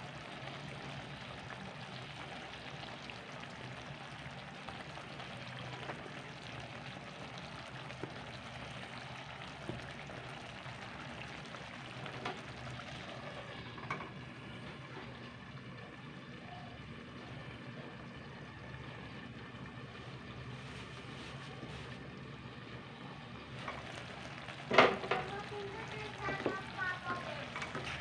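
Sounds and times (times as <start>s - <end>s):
meat sizzling in a pan: 0.0s - 14.9s, 23.4s - 28.0s.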